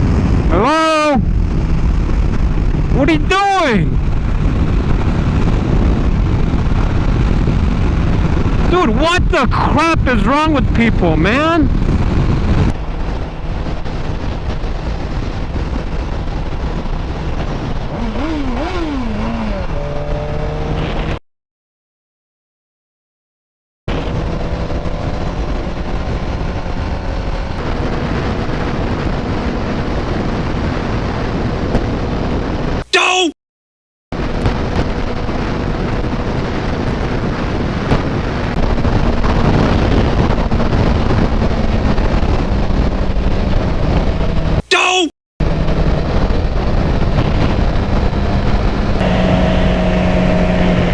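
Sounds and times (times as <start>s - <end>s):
wind rushing: 0.0s - 21.2s, 23.9s - 32.9s, 34.2s - 44.6s, 45.4s - 50.9s
motorcycle engine running: 1.2s - 3.3s, 10.6s - 20.9s, 23.9s - 32.4s, 45.4s - 50.9s.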